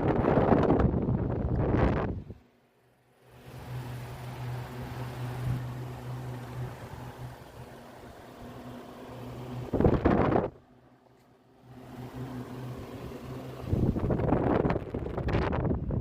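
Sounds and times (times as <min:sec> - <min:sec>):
electric fan motor hum: 0:00.0 - 0:16.0
loud rush of air: 0:11.6 - 0:16.0.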